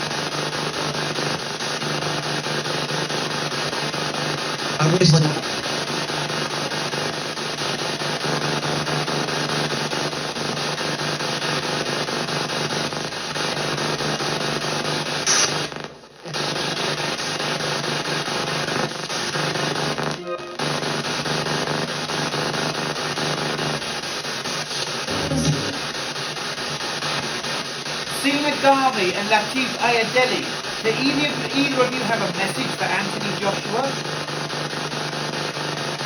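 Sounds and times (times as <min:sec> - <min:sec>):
radio static hiss: 0:00.0 - 0:12.3, 0:12.9 - 0:36.0
snatches of broadcast sound: 0:04.8 - 0:05.7, 0:15.2 - 0:17.4, 0:24.7 - 0:26.0, 0:28.1 - 0:34.0.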